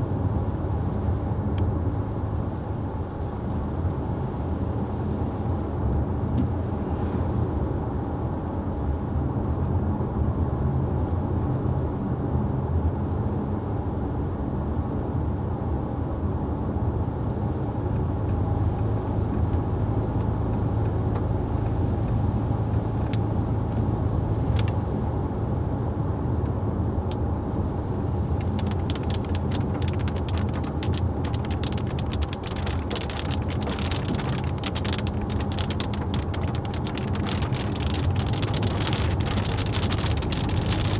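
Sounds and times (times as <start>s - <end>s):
car engine and tyres rumbling: 0.0s - 40.9s
raindrops pattering on car: 27.1s - 40.9s.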